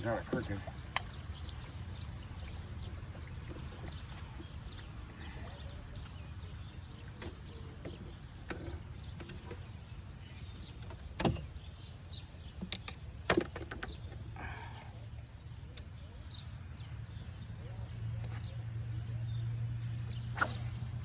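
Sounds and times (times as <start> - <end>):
faint bird chirps: 0.0 - 10.8.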